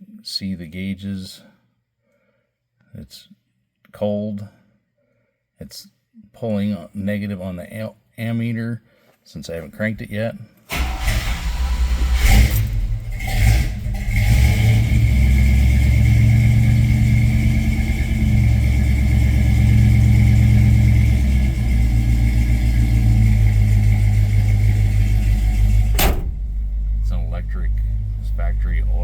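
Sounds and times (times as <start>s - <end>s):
engine cranking and starting: 10.7s - 29.0s
engine idling with low rumble: 10.7s - 29.0s.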